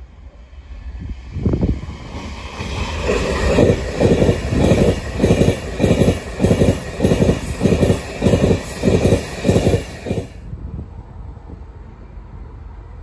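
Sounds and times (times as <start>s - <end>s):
train rushing past: 0.0s - 13.0s
train wheels clattering: 1.9s - 10.4s.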